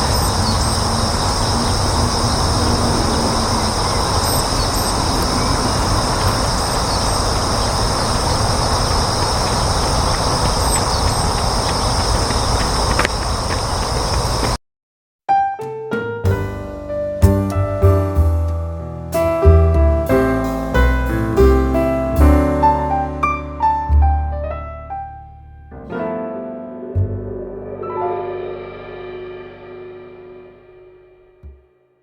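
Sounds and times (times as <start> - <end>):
outdoor background rumble: 0.0 - 14.6.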